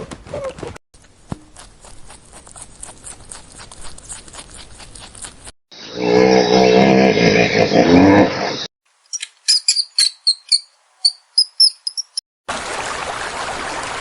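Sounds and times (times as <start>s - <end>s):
hooves clicking: 0.0s - 1.8s.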